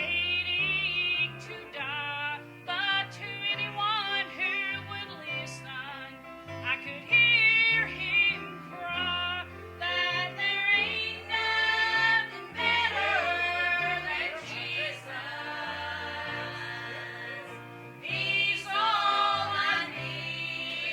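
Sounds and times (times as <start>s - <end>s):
gospel instrumental accompaniment: 0.0s - 20.9s.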